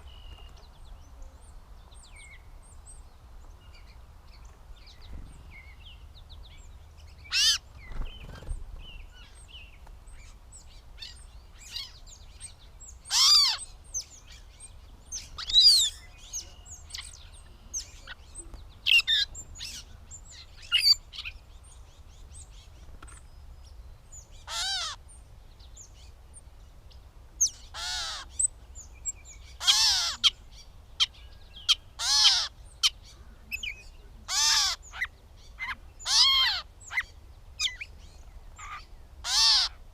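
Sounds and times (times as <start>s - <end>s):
catbird singing: 4.8s - 26.2s, 27.4s - 39.8s.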